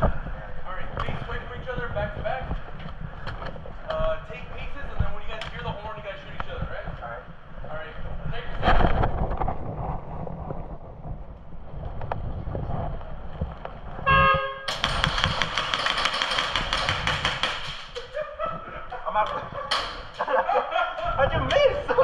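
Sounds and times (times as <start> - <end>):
airsoft guns firing rapidly: 14.7 - 18.2.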